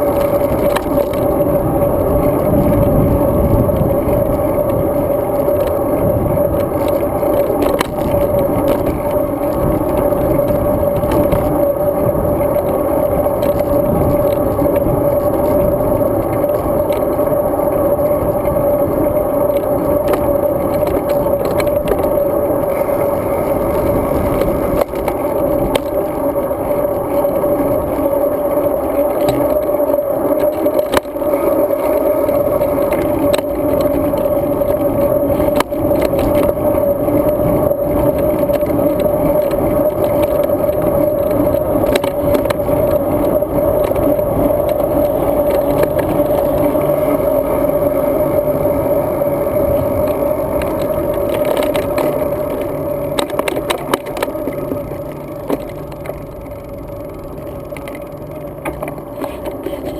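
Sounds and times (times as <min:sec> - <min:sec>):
constant hum: 0:00.0 - 0:59.9
wind and road noise: 0:00.0 - 0:59.9.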